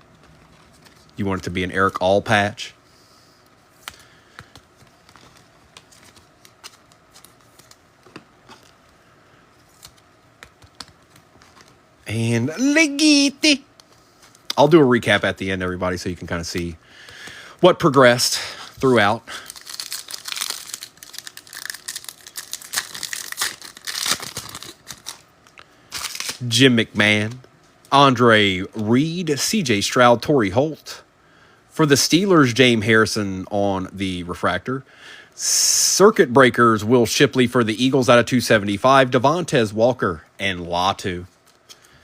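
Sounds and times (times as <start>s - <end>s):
cards being flipped through: 3.8s - 9.0s, 9.6s - 11.8s, 19.5s - 25.2s, 25.9s - 26.5s
foil wrapper crinkling and tearing: 18.9s - 25.3s, 25.9s - 26.6s.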